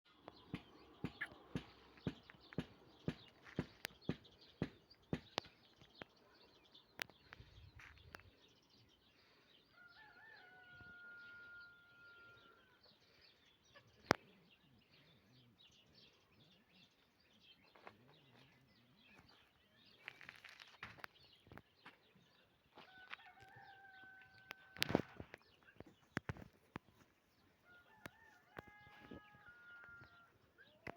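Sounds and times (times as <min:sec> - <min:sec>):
rooster crowing: 0:09.7 - 0:12.5, 0:27.6 - 0:30.3.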